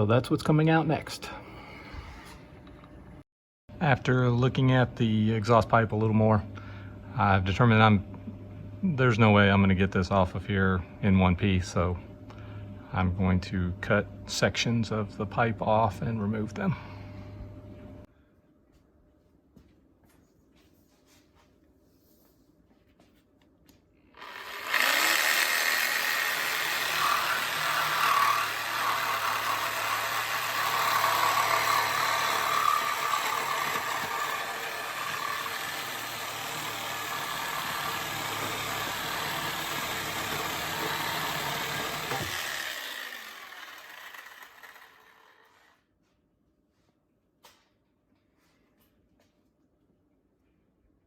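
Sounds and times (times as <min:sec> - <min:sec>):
power tool cutting steel pipe: 0:24.2 - 0:45.8.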